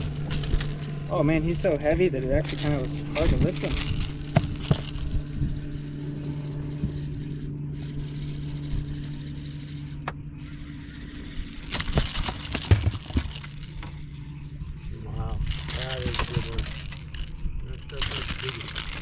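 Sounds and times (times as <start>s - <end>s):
low steady hum: 0.0s - 19.0s
rattling and scraping with clicks: 0.0s - 19.0s.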